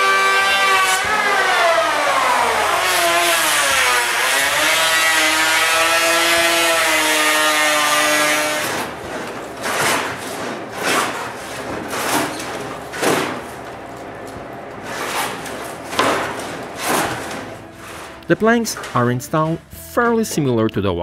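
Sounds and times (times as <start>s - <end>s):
power tool motor cutting wood: 0.0s - 19.1s
short scraping strokes: 14.8s - 19.1s.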